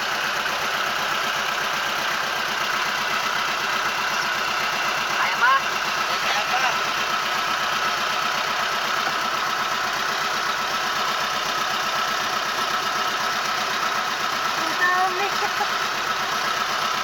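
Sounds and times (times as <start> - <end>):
boat engine droning: 0.0 - 11.4.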